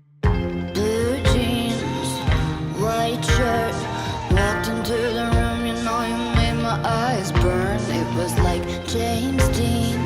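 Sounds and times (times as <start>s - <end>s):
pop song with vocals: 0.3s - 10.0s.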